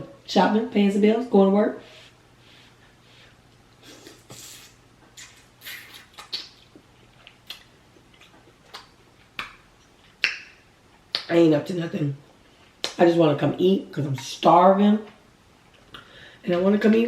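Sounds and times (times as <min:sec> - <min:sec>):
chewing smacks and clicks: 0:05.2 - 0:11.3.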